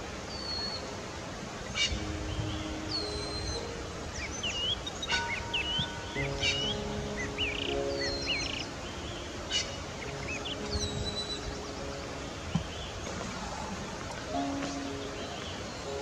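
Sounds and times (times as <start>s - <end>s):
soft background music: 0.0s - 16.0s
small birds chirping: 0.2s - 16.0s.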